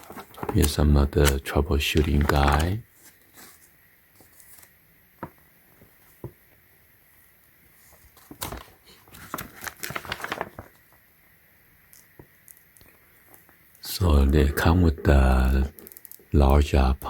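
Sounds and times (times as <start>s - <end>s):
paper and packaging rustling: 0.0s - 6.3s, 7.8s - 11.0s.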